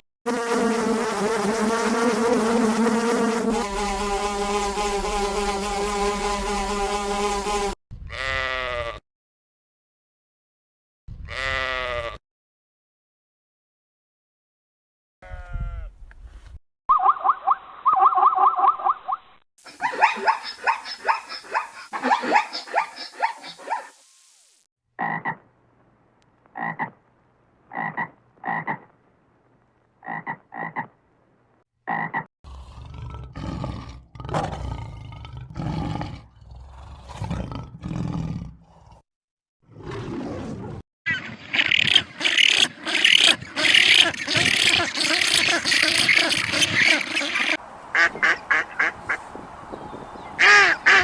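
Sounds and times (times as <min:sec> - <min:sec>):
animal calls: 0:19.7 - 0:24.0, 0:41.2 - 0:51.0.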